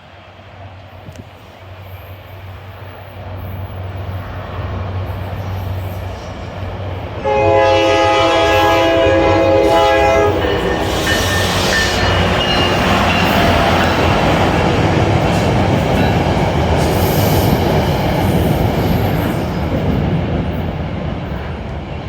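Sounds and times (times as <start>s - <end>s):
train rumble: 0.0s - 22.0s
wheel and rail noise: 0.0s - 22.0s
train horn chord: 7.2s - 13.6s.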